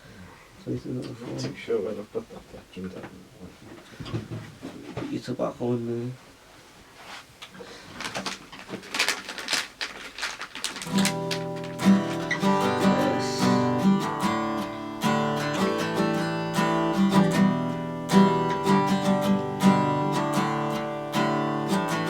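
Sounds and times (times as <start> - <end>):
strummed acoustic guitar: 10.8 - 22.0.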